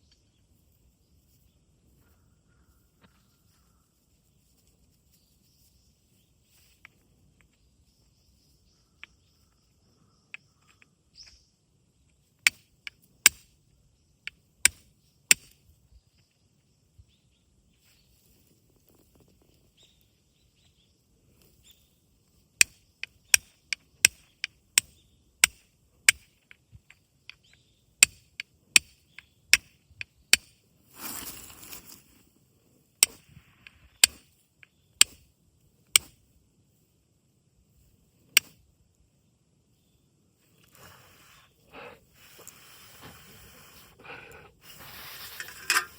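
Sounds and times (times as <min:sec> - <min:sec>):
flint striking fire steel: 0:12.4 - 0:13.6, 0:14.2 - 0:15.6, 0:22.6 - 0:32.2, 0:33.0 - 0:35.3, 0:35.9 - 0:36.2, 0:38.3 - 0:38.6.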